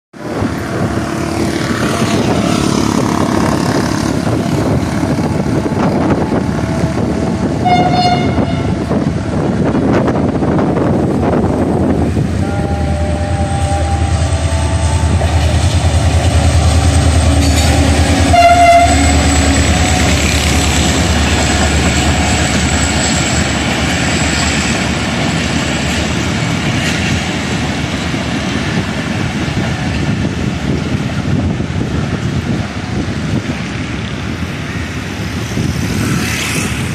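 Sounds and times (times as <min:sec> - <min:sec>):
diesel locomotive engine rumble: 0:00.2 - 0:36.9
train wheels rolling on track: 0:00.2 - 0:36.9
train horn blasts: 0:05.0 - 0:09.5, 0:12.4 - 0:23.4.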